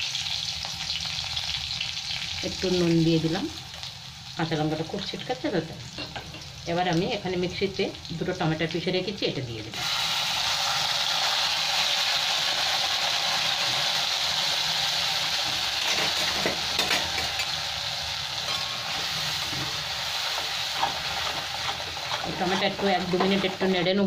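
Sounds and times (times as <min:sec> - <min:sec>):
tomato puree sizzling in oil: 0:00.0 - 0:24.0
spatula scraping pan: 0:18.4 - 0:24.0.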